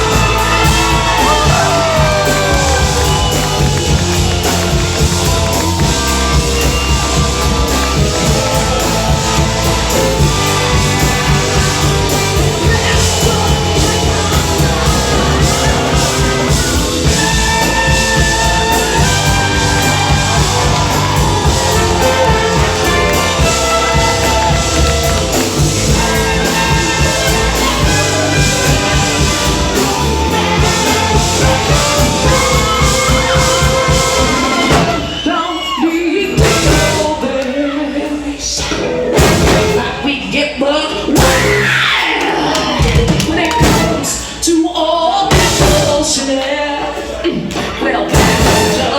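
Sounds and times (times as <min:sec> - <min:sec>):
live rock band playing: 0:00.0 - 0:35.3, 0:36.3 - 0:37.2, 0:38.6 - 0:40.2, 0:41.2 - 0:41.9, 0:42.7 - 0:44.4, 0:45.3 - 0:46.2, 0:48.1 - 0:48.9.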